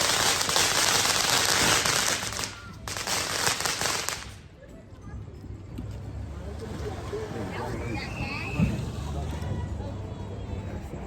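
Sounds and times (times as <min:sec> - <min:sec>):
fireworks crackling: 0:00.0 - 0:04.6.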